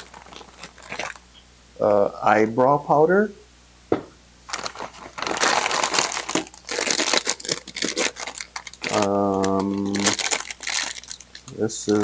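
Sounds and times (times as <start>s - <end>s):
plastic packaging crinkling: 0.0s - 1.4s, 4.5s - 12.0s.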